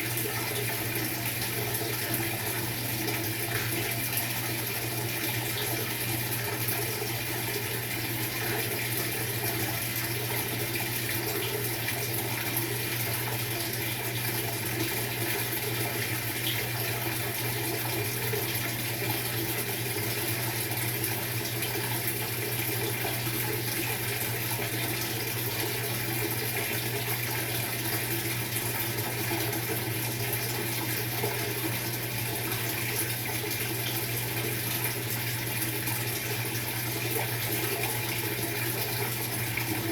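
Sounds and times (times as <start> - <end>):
water rushing in washing machine: 0.0 - 39.9.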